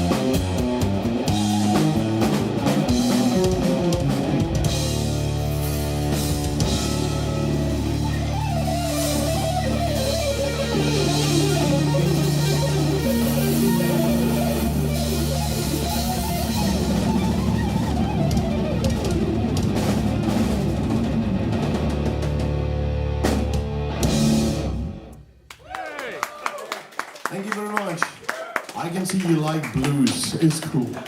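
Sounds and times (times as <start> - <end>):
drum kit: 0.0 - 25.2
electric guitar lead line: 0.0 - 25.2
bass: 0.0 - 25.8.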